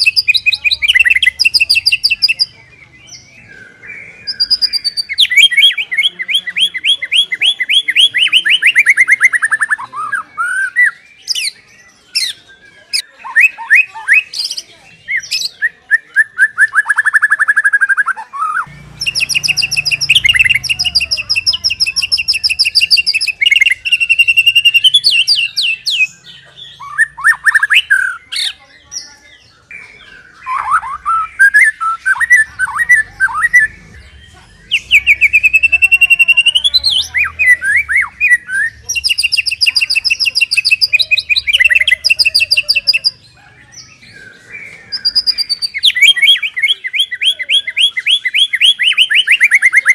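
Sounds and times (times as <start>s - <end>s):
bird singing rapid trills: 0.0s - 49.9s
bird whistled phrases: 3.1s - 28.6s, 29.3s - 33.8s, 34.6s - 49.9s.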